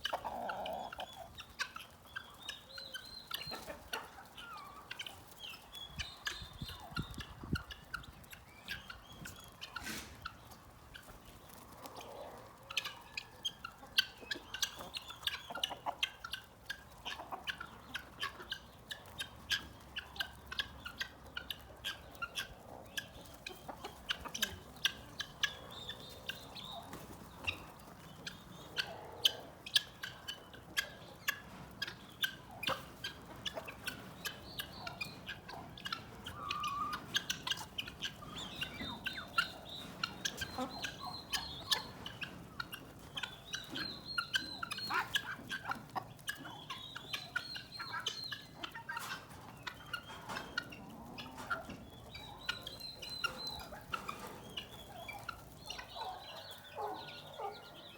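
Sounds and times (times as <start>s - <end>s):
chickens clucking: 0.0s - 57.9s.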